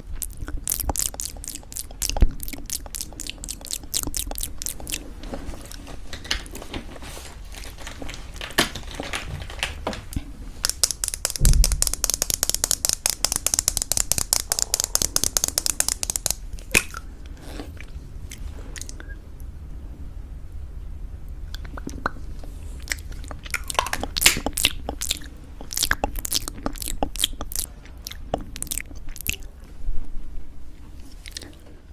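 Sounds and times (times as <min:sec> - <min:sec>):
mouth sounds: 0:00.0 - 0:05.0, 0:10.6 - 0:17.0
crunchy granola chewing: 0:00.2 - 0:05.8, 0:10.6 - 0:17.0.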